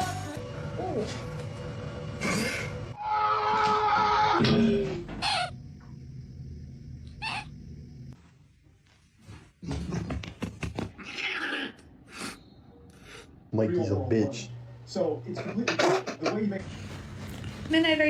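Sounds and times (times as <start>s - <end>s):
cat calling: 7.1s - 7.6s.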